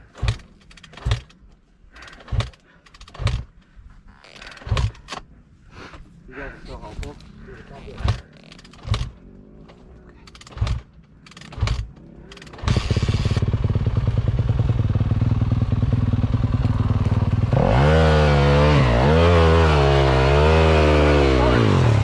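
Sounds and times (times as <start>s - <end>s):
dirt bike engine idling and revving: 0.0s - 1.4s, 7.2s - 22.0s.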